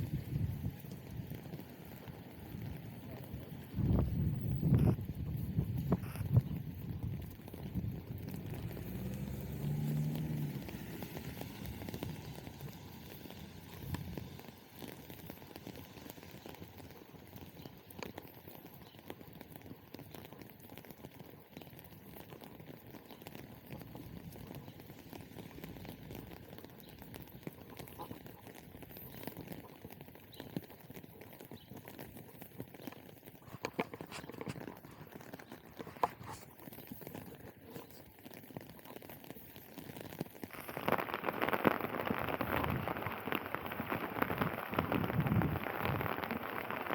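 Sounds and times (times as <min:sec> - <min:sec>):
footsteps on wet street: 0:00.0 - 0:41.3
steady hiss: 0:39.2 - 0:46.9.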